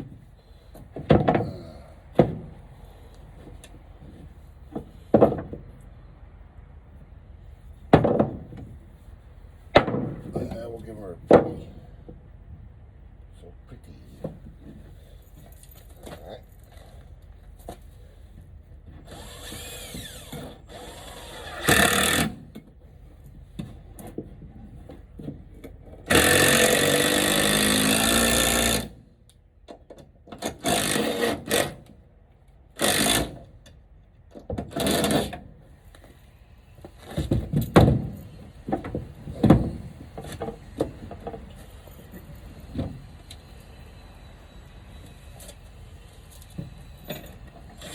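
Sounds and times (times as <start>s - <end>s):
knocks and handling of wood: 0.0s - 2.7s, 3.4s - 5.8s, 7.9s - 8.8s, 9.7s - 12.2s, 36.8s - 43.1s
power drill driving screws: 19.1s - 22.4s, 26.1s - 29.0s, 30.5s - 31.8s, 32.8s - 33.4s.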